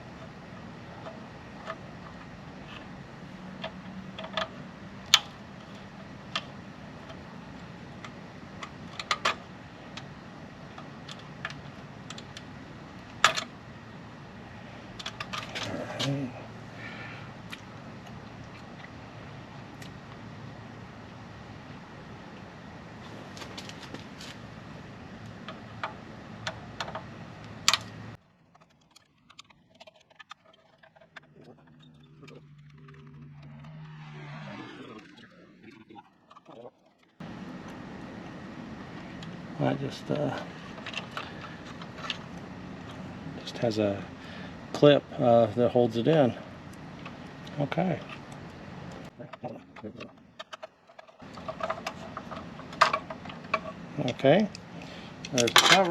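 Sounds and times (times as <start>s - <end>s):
steady background hum: 0.0s - 55.9s
sharp clicks and light knocks: 0.2s - 13.6s, 25.2s - 33.8s, 39.2s - 43.9s, 46.0s - 55.9s.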